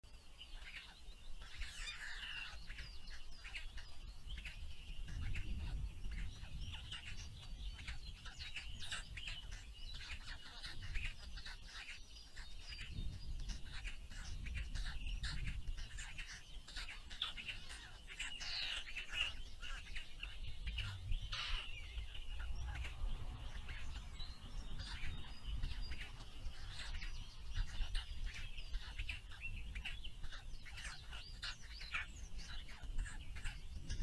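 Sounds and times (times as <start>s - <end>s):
small birds chirping: 0.0s - 34.0s
low rumble: 20.2s - 28.1s.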